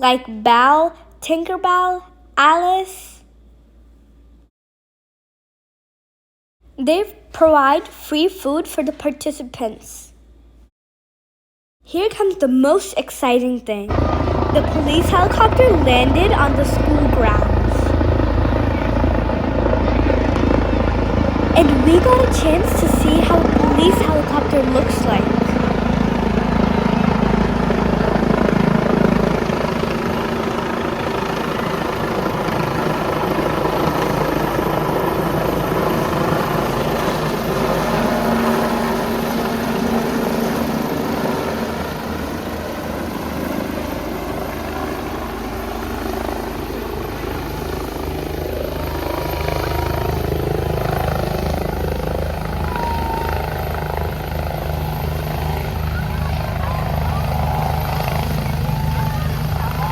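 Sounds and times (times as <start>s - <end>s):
helicopter rotor and turbine: 13.9s - 59.9s.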